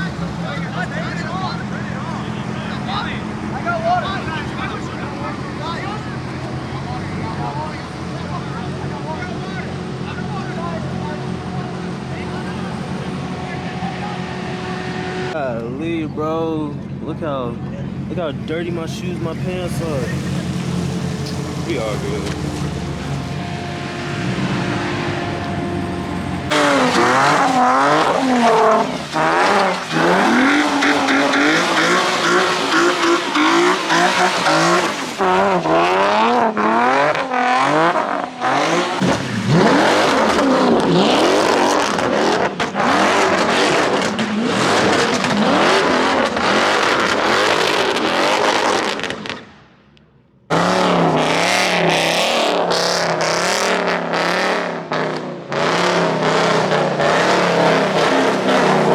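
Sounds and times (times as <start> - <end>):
car engine revving: 0.0 - 58.9
tyre squeal: 26.5 - 36.0.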